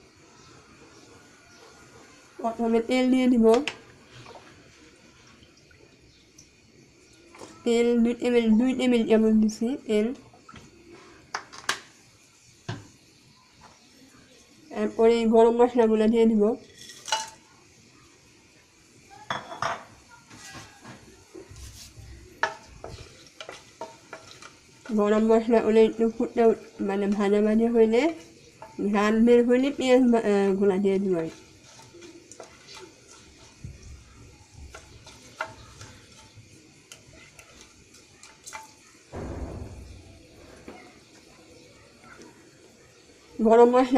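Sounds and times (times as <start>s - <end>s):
spices sizzling in oil: 0.0s - 43.9s
metal utensils clinking on pan: 16.6s - 17.4s, 22.4s - 25.5s, 31.2s - 33.8s, 34.5s - 39.1s
utensil scraping: 31.1s - 38.7s.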